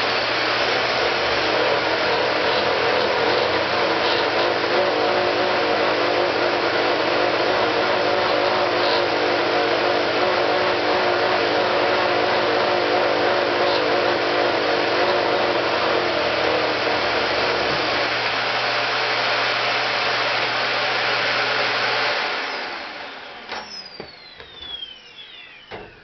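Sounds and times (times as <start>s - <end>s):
motor whine spinning down: 21.3s - 26.0s
machine motor humming: 22.4s - 26.0s.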